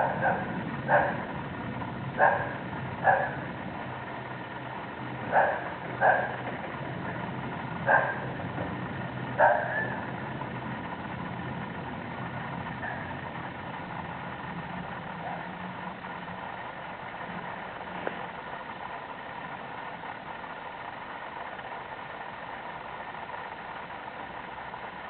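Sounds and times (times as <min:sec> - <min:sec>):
dog barking: 0:00.0 - 0:01.3, 0:02.2 - 0:03.5, 0:05.3 - 0:06.4, 0:07.9 - 0:08.4, 0:09.4 - 0:10.1, 0:12.8 - 0:13.2, 0:15.2 - 0:15.5
low mechanical hum: 0:00.0 - 0:25.0.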